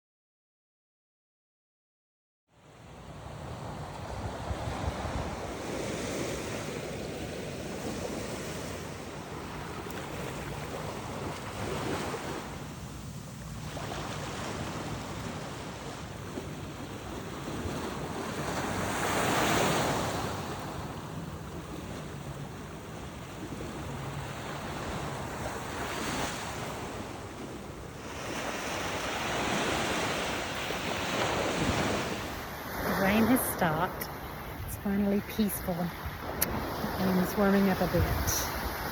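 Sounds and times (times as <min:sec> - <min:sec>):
ocean surf on beach: 0:02.6 - 0:38.9
wind buffeting microphone: 0:03.4 - 0:25.9.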